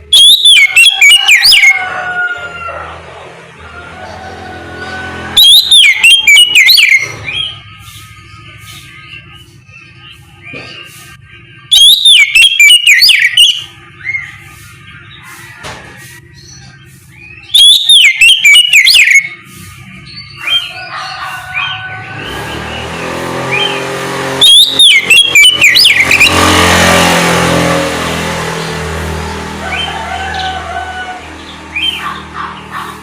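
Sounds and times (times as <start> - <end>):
bird singing whistled phrases: 11.6 - 14.4, 17.2 - 19.4, 24.4 - 26.3.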